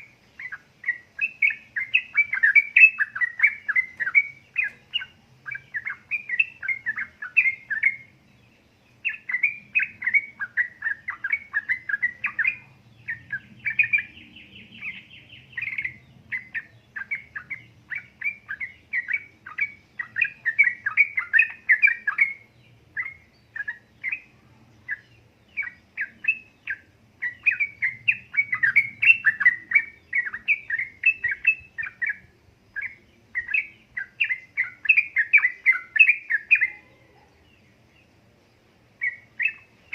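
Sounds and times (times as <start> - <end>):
bird bubbly chirping song: 0.0 - 38.0, 38.9 - 39.9.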